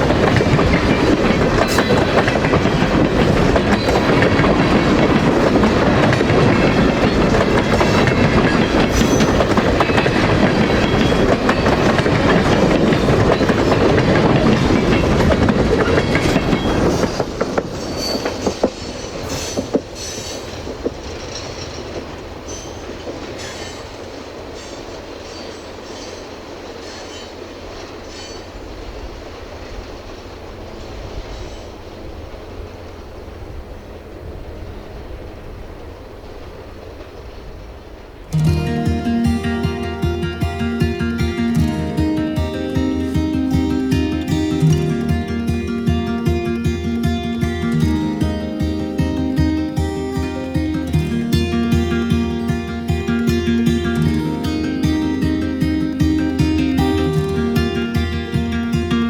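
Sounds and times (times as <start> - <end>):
wheel squeals: 0.0 - 24.0
freight train cars rolling past: 0.0 - 59.0
wheels clicking over rail joints: 0.0 - 59.0.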